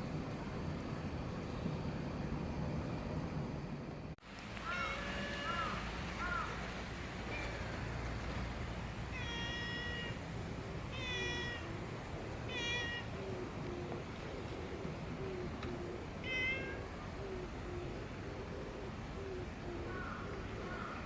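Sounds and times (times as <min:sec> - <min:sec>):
low background rumble: 0:00.0 - 0:21.0
cat meowing: 0:09.1 - 0:10.2, 0:10.9 - 0:11.6, 0:12.5 - 0:13.1, 0:16.2 - 0:16.8.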